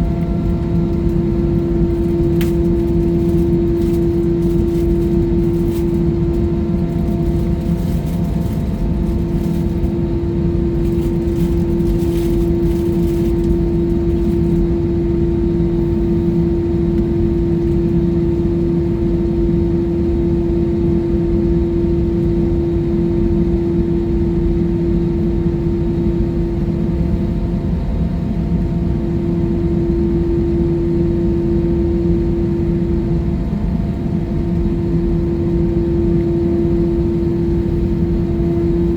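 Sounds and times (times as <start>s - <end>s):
constant hum: 0.0s - 38.9s
jet engine cabin rumble: 0.0s - 38.9s.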